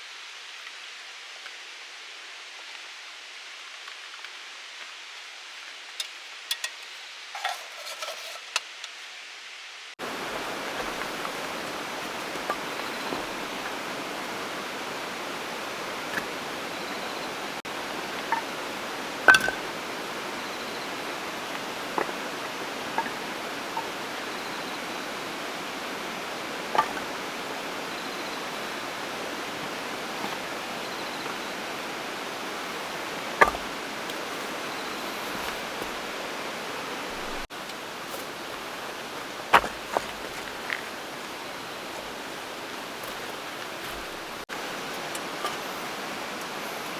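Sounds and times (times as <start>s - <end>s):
rushing water: 10.0s - 46.9s.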